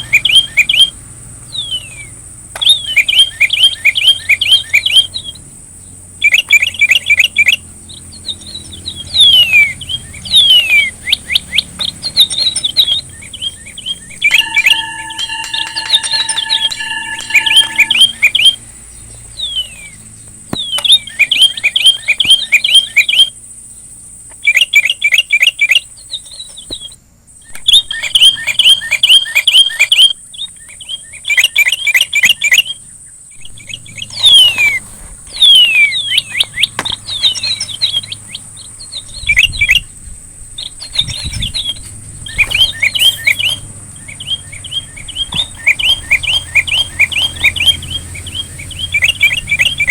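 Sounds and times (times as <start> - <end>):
songbird singing: 0.0 - 49.9
steady high-pitched hiss: 14.1 - 20.2.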